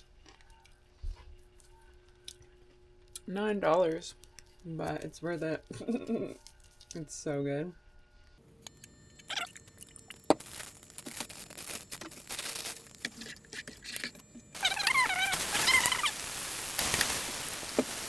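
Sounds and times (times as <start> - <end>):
wavering high whine: 8.4 - 18.0
steady hiss: 10.0 - 18.0.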